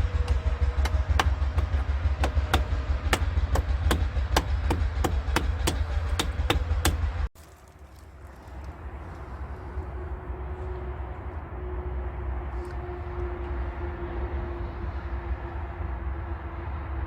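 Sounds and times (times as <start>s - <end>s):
sharp knocks: 0.0s - 7.3s
low hum: 0.0s - 17.0s.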